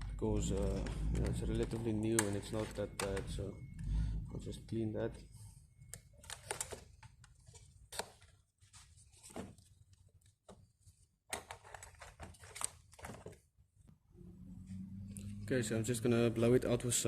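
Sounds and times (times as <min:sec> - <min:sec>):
plastic cover clicks and knocks: 0:00.6 - 0:03.3.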